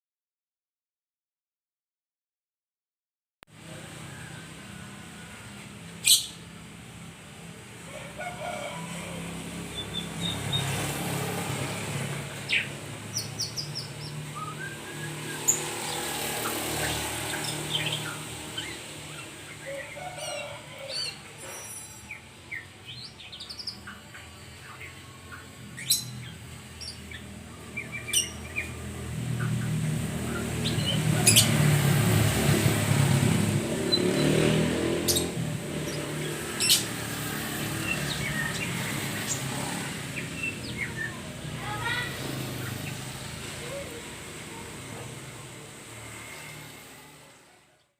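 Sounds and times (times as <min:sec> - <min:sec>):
songbird chirping and calling: 0:04.1 - 0:06.6, 0:09.6 - 0:31.8, 0:33.8 - 0:44.6.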